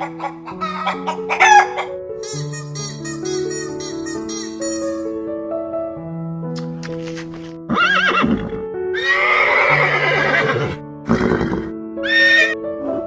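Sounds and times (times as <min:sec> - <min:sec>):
soft piano music: 0:00.0 - 0:13.0
horse whinnying: 0:07.7 - 0:12.6.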